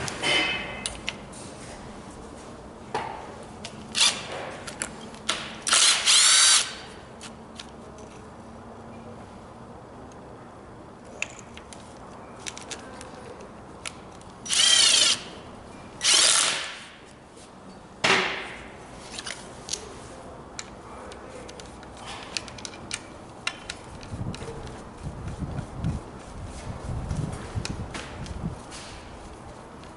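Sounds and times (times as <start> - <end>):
handheld power tool bursts: 5.6 - 6.8, 14.5 - 15.3, 16.0 - 16.9
tools clicking: 21.5 - 24.8.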